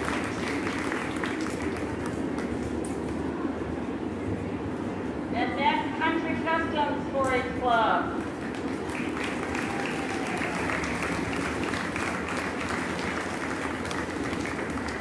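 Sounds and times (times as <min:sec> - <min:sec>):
crowd applauding: 0:00.0 - 0:02.6, 0:08.3 - 0:15.0.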